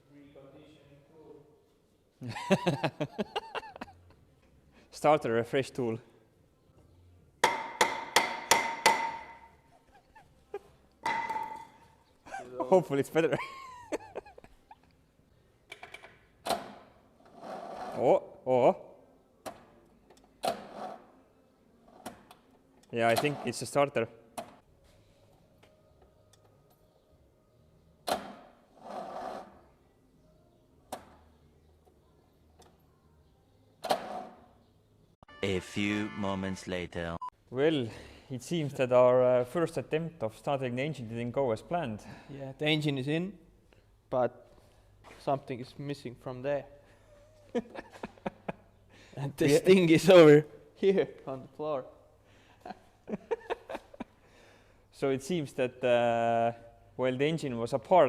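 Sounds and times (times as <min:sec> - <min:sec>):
hammer striking metal: 0:07.4 - 0:09.5.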